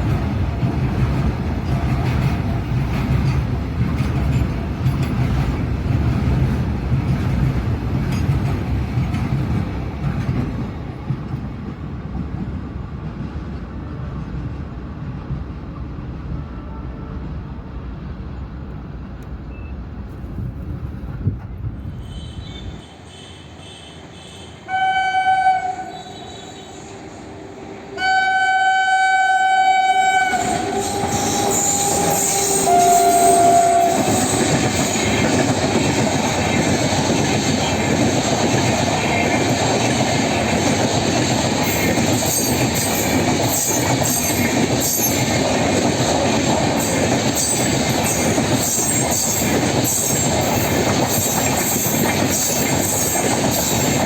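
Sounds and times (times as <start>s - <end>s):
train wheels on rails: 0.0s - 54.0s
locomotive horn blasts: 22.0s - 27.0s, 27.9s - 34.6s.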